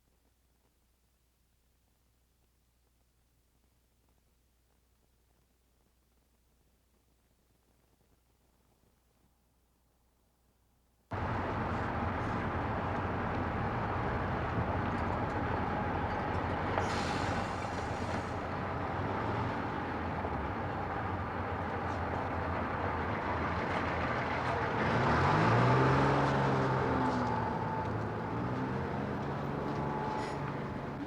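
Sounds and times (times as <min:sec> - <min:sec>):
vehicle rumble and hiss: 0:11.1 - 0:31.0.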